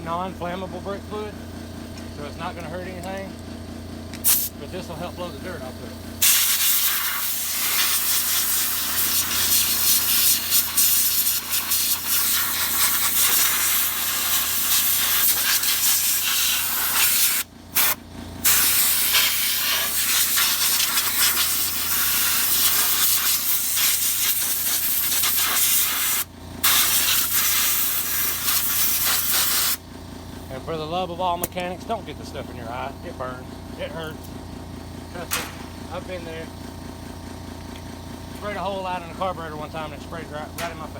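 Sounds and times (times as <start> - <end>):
compressed air blow gun hissing: 4.2 - 4.6, 6.2 - 29.8.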